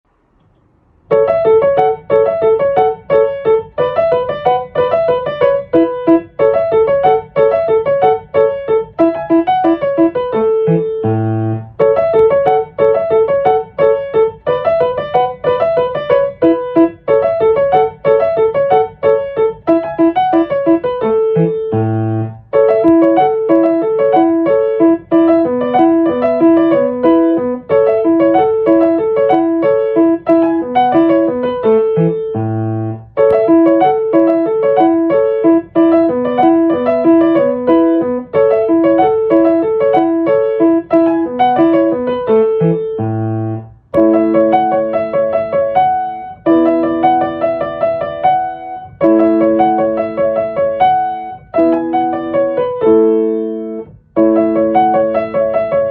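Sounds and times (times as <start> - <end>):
solo piano music: 0.1 - 55.9.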